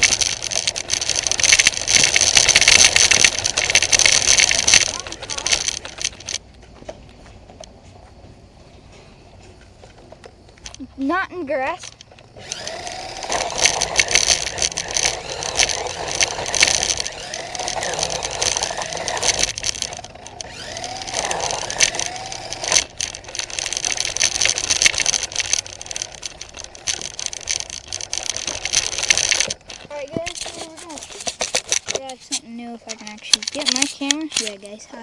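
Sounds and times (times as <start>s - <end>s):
electric motor whining: 0.0s - 6.4s, 12.3s - 30.7s
plastic chassis rattling: 0.0s - 6.4s, 10.6s - 32.3s, 32.9s - 34.7s.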